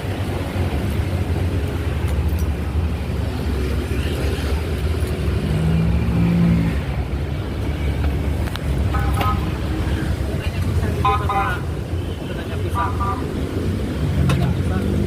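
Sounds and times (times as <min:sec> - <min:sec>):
road noise: 0:00.0 - 0:15.0
vehicle engines rumbling: 0:00.0 - 0:15.0.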